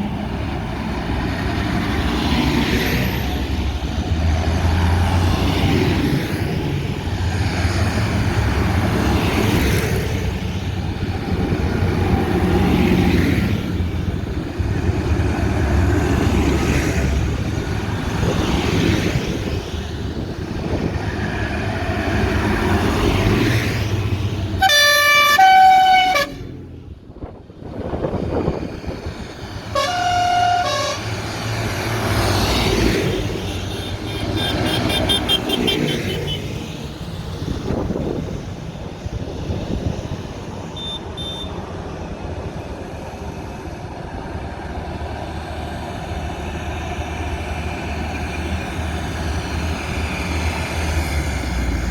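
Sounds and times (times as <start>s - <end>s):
tractor engines running: 0.0s - 51.9s
two-note horn blasts: 24.6s - 26.5s, 29.8s - 31.1s.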